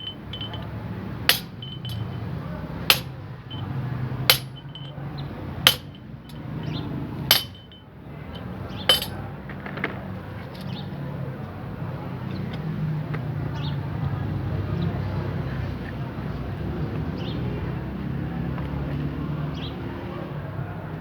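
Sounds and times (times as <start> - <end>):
hammer striking steel: 0.0 - 0.7, 1.3 - 2.2, 2.9 - 3.7, 4.3 - 5.0, 5.6 - 7.8, 8.9 - 9.2.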